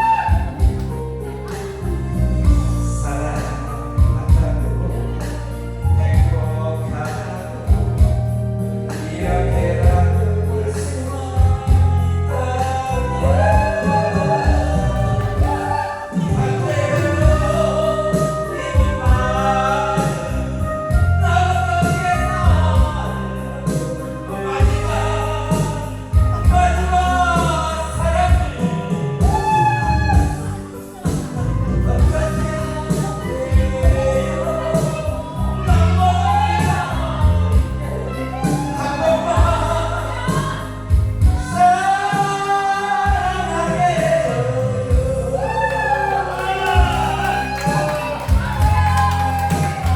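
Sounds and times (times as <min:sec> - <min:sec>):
regular drum beat: 0:00.0 - 0:02.9, 0:13.5 - 0:20.3, 0:21.8 - 0:42.5
amplified instrumental music: 0:00.0 - 0:49.9
bass line: 0:00.0 - 0:49.9
person singing: 0:00.0 - 0:49.9.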